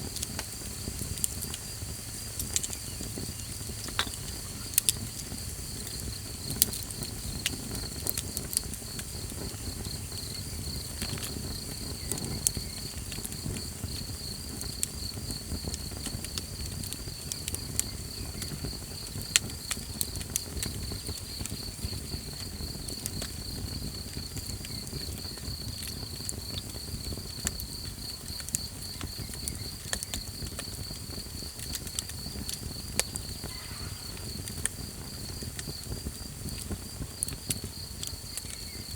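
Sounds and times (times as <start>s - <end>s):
campfire crackling and popping: 0.0s - 38.9s
insect trilling: 32.3s - 35.8s.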